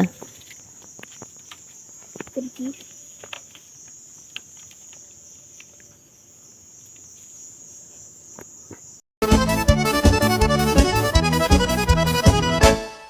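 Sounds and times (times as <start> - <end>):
insects chirring: 0.0 - 9.0
faint clicks: 0.4 - 6.0.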